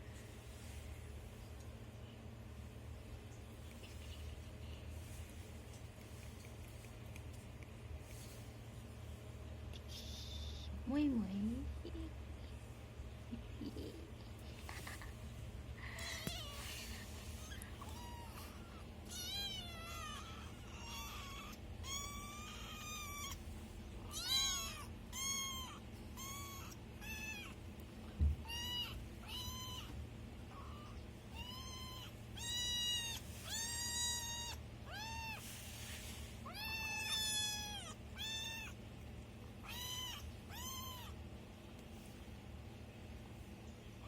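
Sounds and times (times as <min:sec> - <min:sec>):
kittens meowing: 0:09.8 - 0:10.8, 0:16.0 - 0:27.6, 0:28.2 - 0:35.6, 0:36.4 - 0:38.8, 0:39.6 - 0:41.2.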